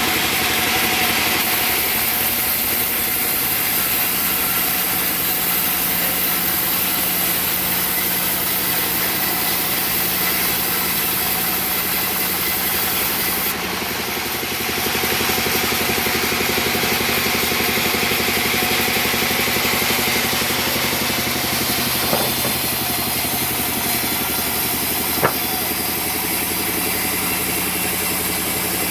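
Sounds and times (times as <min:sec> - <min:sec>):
sawmill engine running: 0:00.0 - 0:28.9
sharp knocks: 0:22.0 - 0:22.7, 0:25.1 - 0:25.7.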